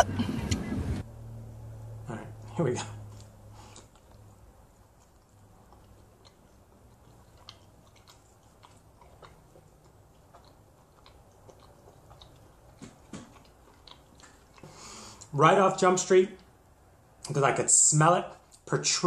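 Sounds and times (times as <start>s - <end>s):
faint chewing: 2.4s - 15.4s, 18.3s - 18.8s.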